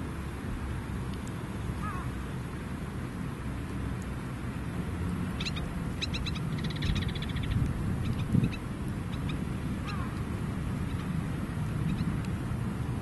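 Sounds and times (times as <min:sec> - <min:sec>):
steady low rumble: 0:00.0 - 0:13.0
small bird chirping: 0:05.4 - 0:10.2.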